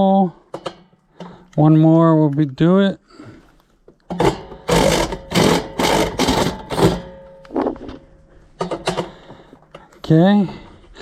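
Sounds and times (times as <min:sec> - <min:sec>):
power drill cutting metal: 0:04.2 - 0:07.1.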